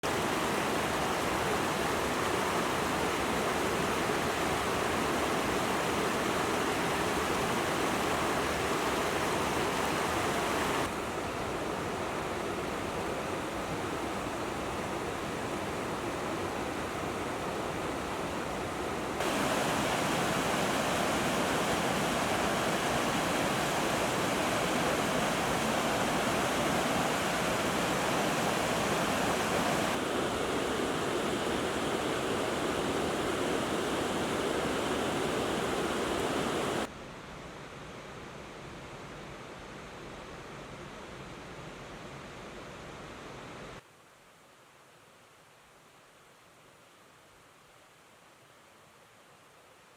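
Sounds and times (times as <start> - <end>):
flowing water rushing: 0.0 - 36.9.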